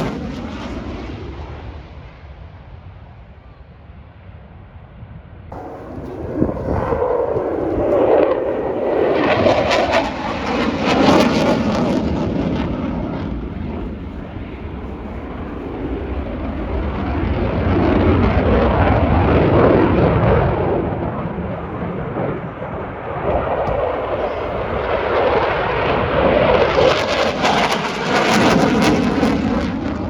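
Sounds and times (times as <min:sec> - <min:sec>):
aircraft roaring past: 0:05.5 - 0:30.0.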